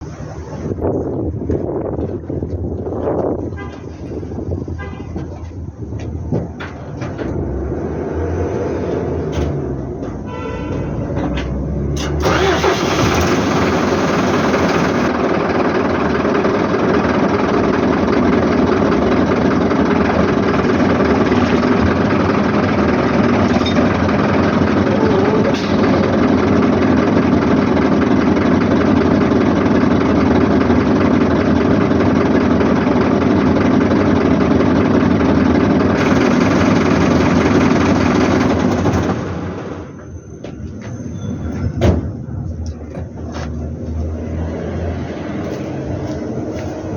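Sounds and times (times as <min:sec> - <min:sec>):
truck diesel engine running: 0:11.6 - 0:41.1.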